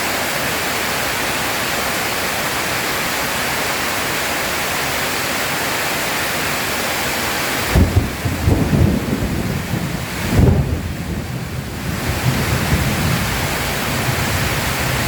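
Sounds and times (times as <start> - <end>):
heavy rain hissing: 0.0 - 15.0
light rain: 0.0 - 15.0
deep rolling thunder: 7.7 - 15.0.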